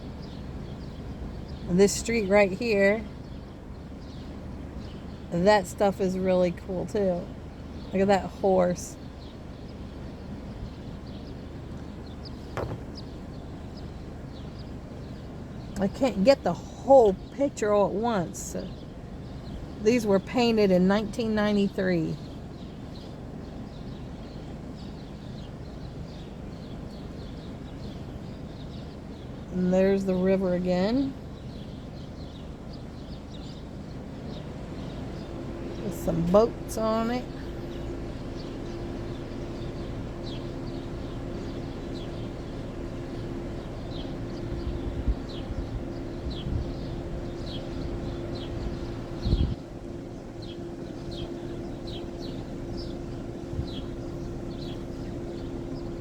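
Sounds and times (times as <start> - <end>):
birds chirping: 0.0 - 56.0
low background rumble: 0.0 - 56.0
low mechanical hum: 0.0 - 56.0
low rumbling bumps: 11.7 - 14.0, 41.0 - 56.0.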